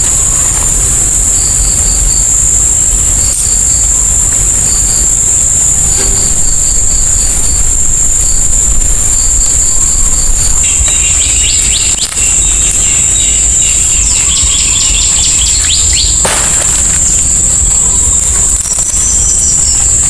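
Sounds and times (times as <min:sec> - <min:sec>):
high-pitched insect drone: 0:00.0 - 0:20.0
bird chirping: 0:10.0 - 0:20.0.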